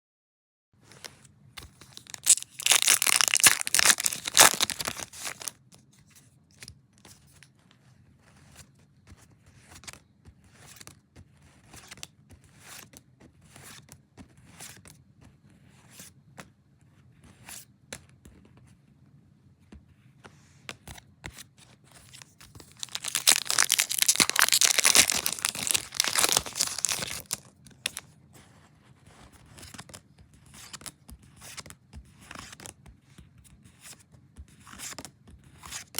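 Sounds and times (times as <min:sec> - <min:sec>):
foil wrapper tearing: 0:01.9 - 0:05.5, 0:22.2 - 0:28.0
trading cards clicking and rustling: 0:01.9 - 0:05.5, 0:22.8 - 0:28.0.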